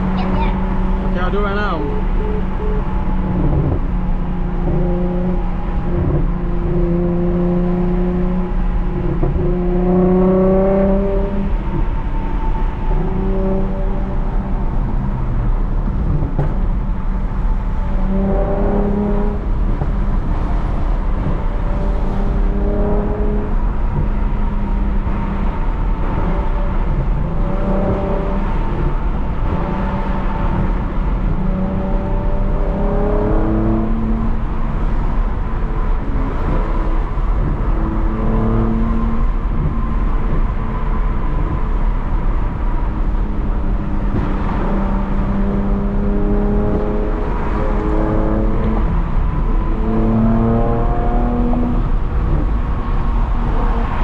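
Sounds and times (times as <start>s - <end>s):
car exhaust droning: 0.0s - 54.0s
road rumble: 0.0s - 54.0s.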